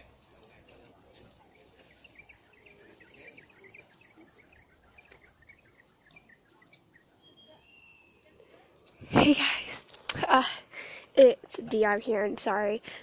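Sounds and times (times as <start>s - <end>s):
distant birds chirping: 0.0s - 10.1s.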